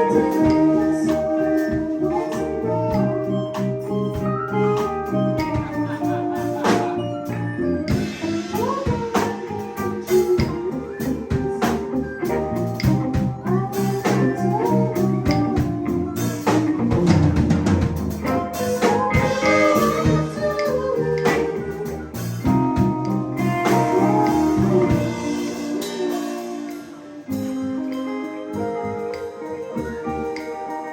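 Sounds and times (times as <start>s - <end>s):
bass: 0.0s - 30.9s
drum kit: 0.0s - 30.9s
electric guitar lead: 0.0s - 30.9s.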